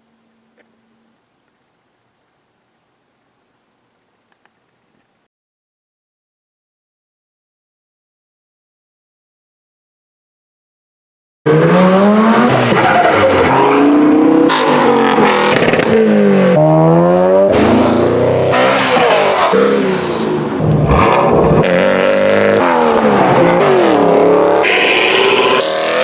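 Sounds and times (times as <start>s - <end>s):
cars revving and accelerating: 11.5s - 26.0s
high squeal falling in pitch: 19.4s - 20.4s.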